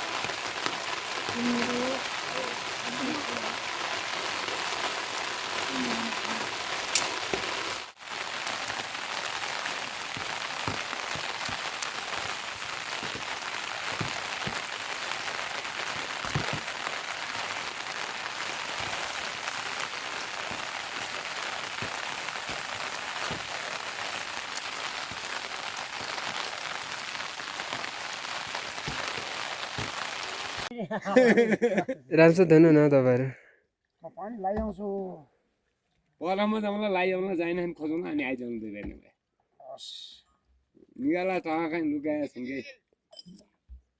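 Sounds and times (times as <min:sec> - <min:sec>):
heavy rain falling: 0:00.0 - 0:30.7.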